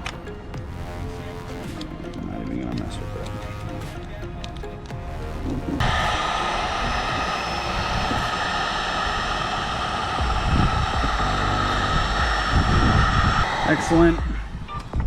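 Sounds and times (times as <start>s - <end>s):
heat gun blowing with whining fan: 5.8s - 15.0s.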